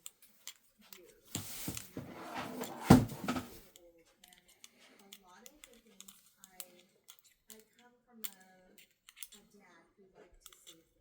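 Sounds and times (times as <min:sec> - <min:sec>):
paper rustling: 0:01.3 - 0:03.6.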